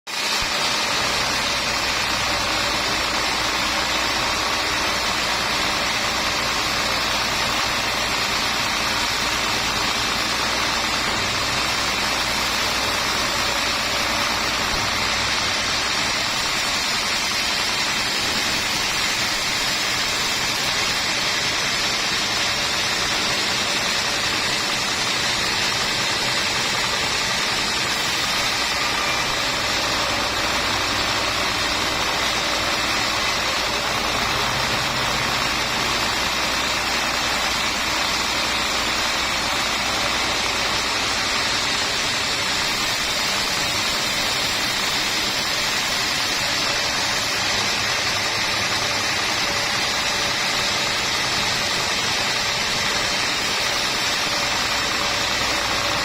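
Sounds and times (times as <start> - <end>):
steady mechanical noise: 0.1 - 56.0.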